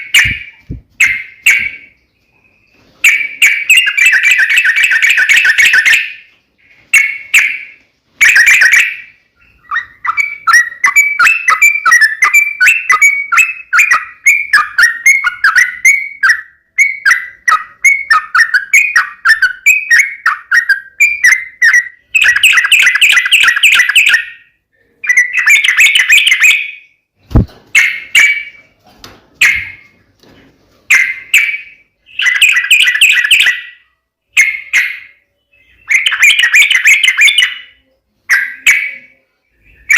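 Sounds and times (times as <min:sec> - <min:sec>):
bird singing bubbly phrases: 0:08.2 - 0:27.0, 0:31.7 - 0:39.9.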